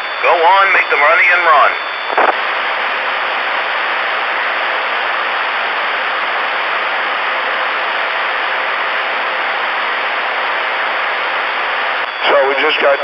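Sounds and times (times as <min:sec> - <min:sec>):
short radio burst: 0:00.0 - 0:02.4
radio static hiss: 0:00.0 - 0:13.0.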